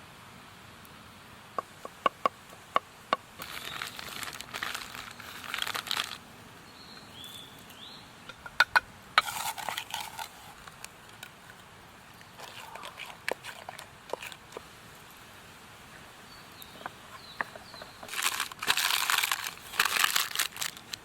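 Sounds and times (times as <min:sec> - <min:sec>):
packaging crinkling: 0:03.4 - 0:06.2, 0:17.5 - 0:21.0.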